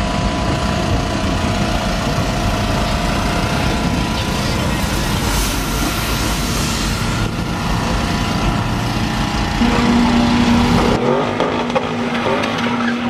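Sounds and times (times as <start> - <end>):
car engine running: 0.0 - 13.0
steady tone: 0.0 - 13.0.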